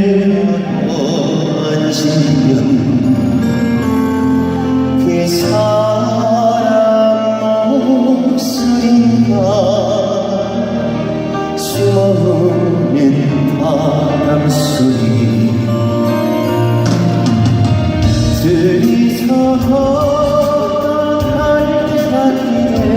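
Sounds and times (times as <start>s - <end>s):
live band playing slow ballad: 0.0s - 22.9s.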